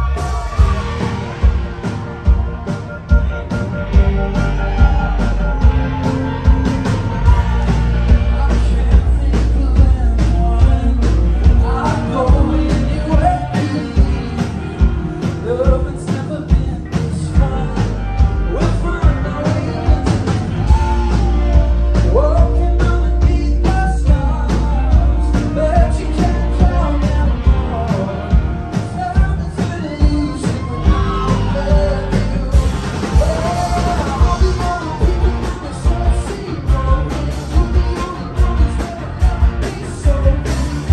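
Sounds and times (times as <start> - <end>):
electric guitars: 0.0 - 40.9
man singing: 3.8 - 40.9.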